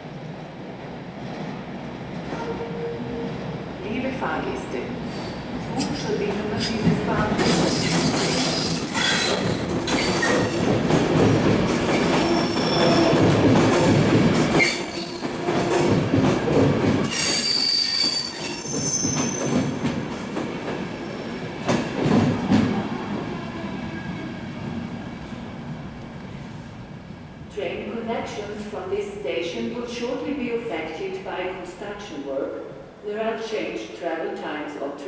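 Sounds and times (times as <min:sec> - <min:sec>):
train wheel squeal: 0:07.6 - 0:10.9, 0:14.6 - 0:15.9, 0:17.0 - 0:19.7.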